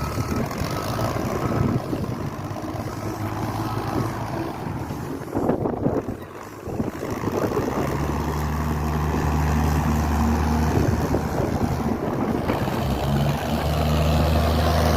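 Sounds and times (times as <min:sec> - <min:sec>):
forklift engine drone: 0:00.0 - 0:14.9
wind on microphone: 0:00.0 - 0:14.9.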